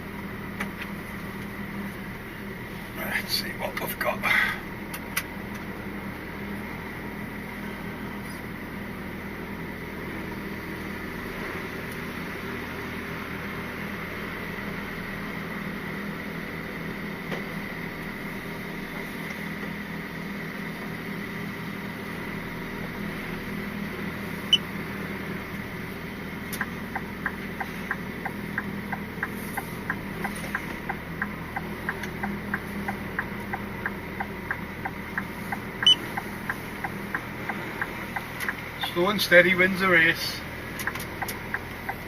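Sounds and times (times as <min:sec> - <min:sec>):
diesel truck engine running: 0:00.0 - 0:42.0
turn signal ticking: 0:25.5 - 0:39.2, 0:40.6 - 0:42.0.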